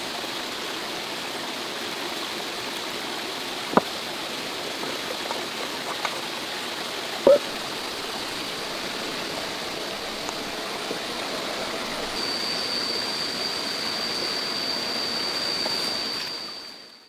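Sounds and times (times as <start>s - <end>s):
stream running water: 0.0s - 16.9s
high-pitched whine: 10.5s - 17.0s.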